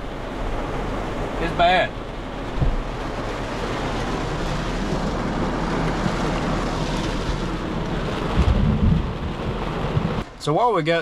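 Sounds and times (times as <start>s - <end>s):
heavy rain on a truck: 0.0s - 11.0s
low rumble: 1.9s - 10.4s.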